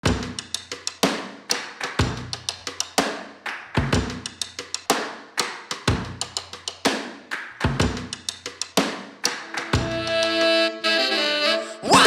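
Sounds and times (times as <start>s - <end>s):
music with steady drum beat: 0.0s - 10.6s.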